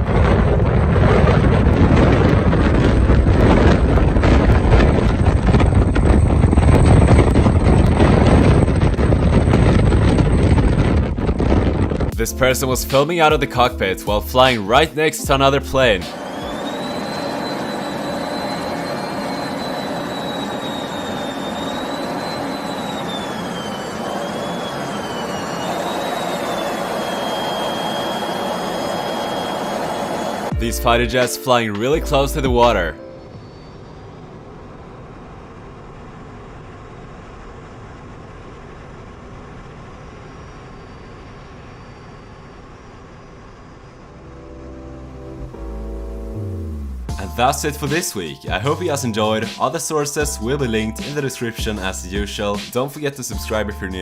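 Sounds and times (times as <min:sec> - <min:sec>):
wind buffeting microphone: 0:00.0 - 0:12.2
engine rumble: 0:00.0 - 0:54.0.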